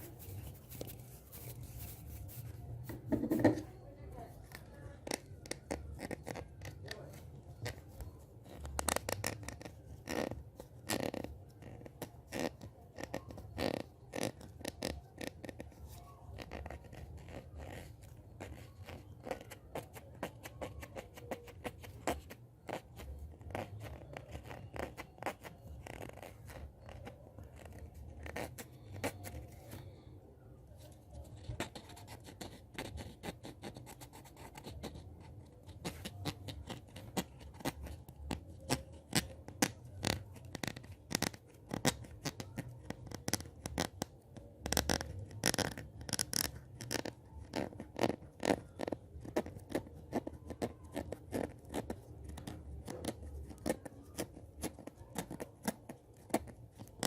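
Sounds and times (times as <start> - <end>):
hands rubbing and scratching: 0.0 - 3.8.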